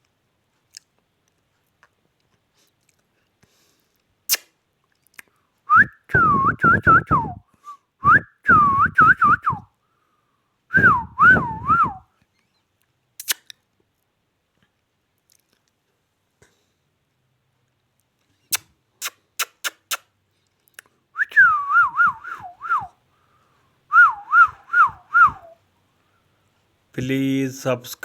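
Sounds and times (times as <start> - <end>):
warbling whistled phrases: 5.7 - 9.7, 10.7 - 12.6, 21.2 - 23.0, 23.9 - 25.6.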